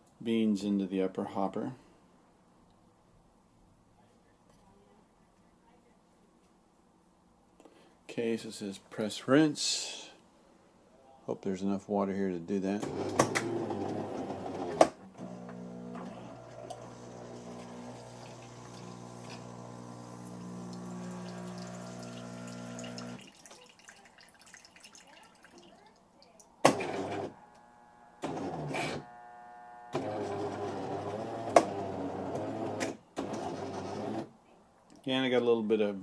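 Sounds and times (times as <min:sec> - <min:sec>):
coffee machine pump humming: 0:12.8 - 0:23.3, 0:26.7 - 0:34.2.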